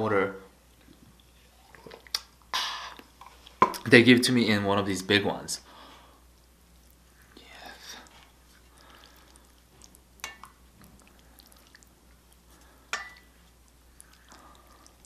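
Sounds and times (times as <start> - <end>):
soup being stirred: 7.9 - 15.0.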